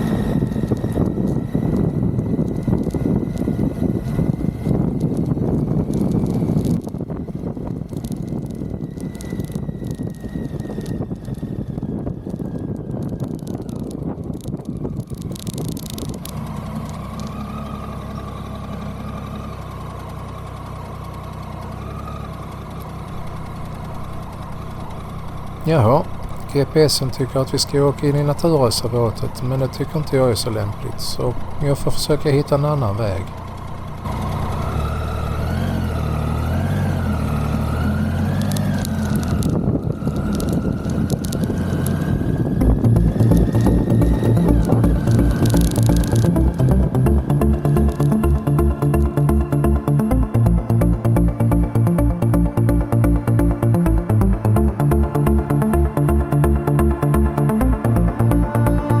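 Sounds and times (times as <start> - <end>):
motorcycle engine idling: 0.0 - 12.2, 14.8 - 59.0
wind noise: 0.0 - 16.4, 37.6 - 55.2.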